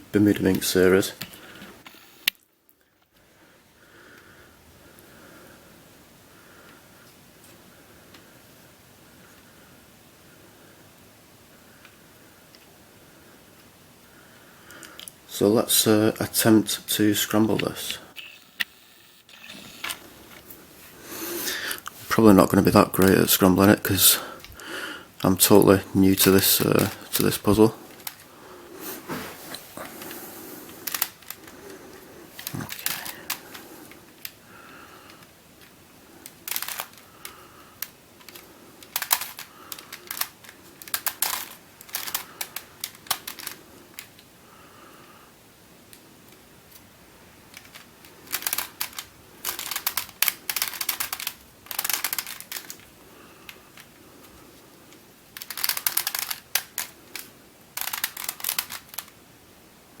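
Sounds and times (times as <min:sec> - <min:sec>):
plastic puzzle clicking: 0:26.2 - 0:28.2, 0:30.0 - 0:31.7, 0:32.4 - 0:34.4, 0:35.1 - 0:44.3, 0:47.5 - 0:52.9, 0:55.3 - 0:59.2.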